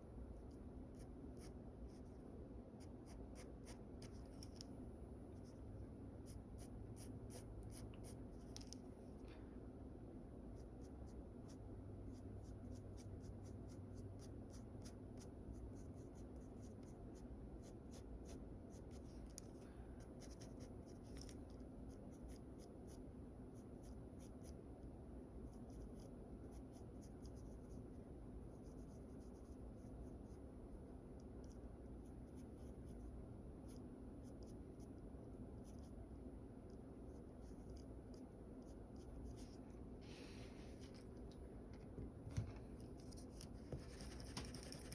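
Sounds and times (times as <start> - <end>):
low room hum: 0.0 - 44.9
pencil scratching on paper: 17.6 - 21.3, 28.5 - 30.4, 42.4 - 44.9.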